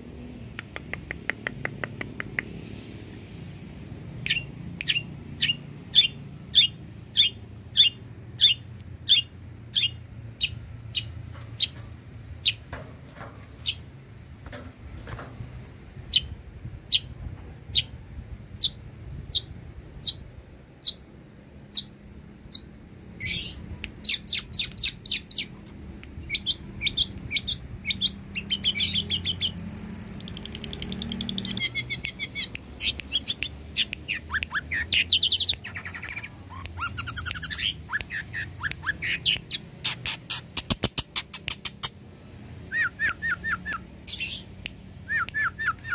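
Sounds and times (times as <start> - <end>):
bird singing chirps and trills: 4.3 - 11.8, 21.7 - 25.6, 26.2 - 42.0, 42.7 - 45.9.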